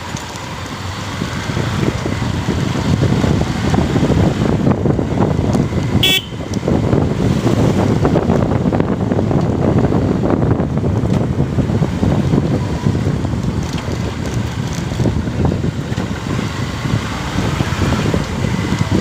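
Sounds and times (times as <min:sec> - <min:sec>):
motorcycle engine and road noise: 0:00.0 - 0:19.0
wind rushing over microphone: 0:00.0 - 0:19.0
vehicle horn toot: 0:06.0 - 0:06.5.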